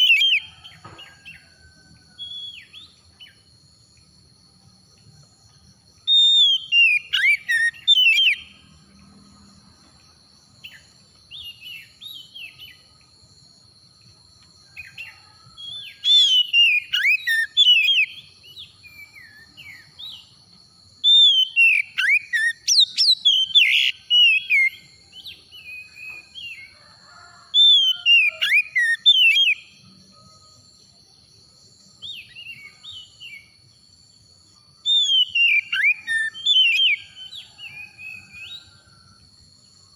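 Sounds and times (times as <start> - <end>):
bird singing whistled phrases: 6.1 - 8.5, 15.7 - 20.3, 21.0 - 26.6, 27.6 - 29.6, 34.9 - 38.6.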